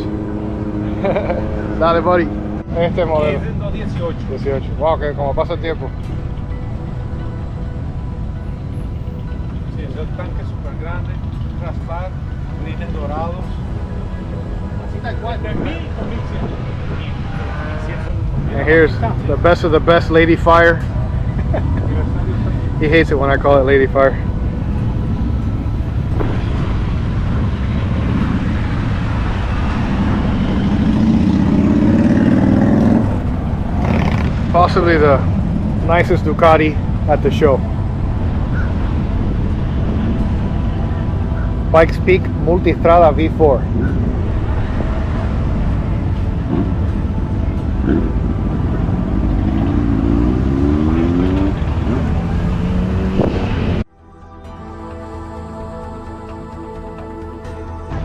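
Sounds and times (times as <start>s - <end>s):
motorcycle engine revving: 0.0s - 4.2s, 24.8s - 37.4s, 43.6s - 53.8s
outdoor background noise: 0.0s - 58.0s.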